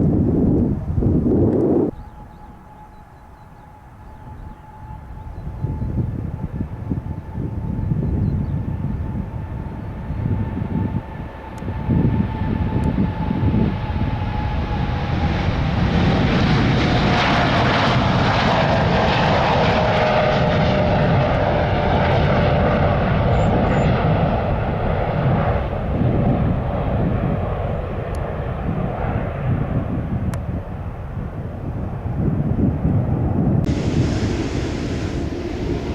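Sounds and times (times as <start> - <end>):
jet engines at takeoff power: 0.0 - 35.9
engine whine falling in pitch: 0.4 - 11.0, 33.6 - 35.9.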